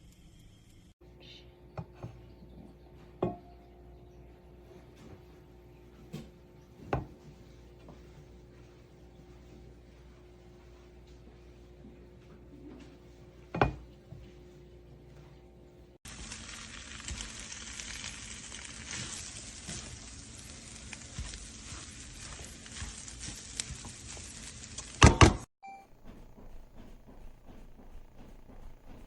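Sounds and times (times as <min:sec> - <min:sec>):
food sizzling on a griddle: 0:16.0 - 0:25.4.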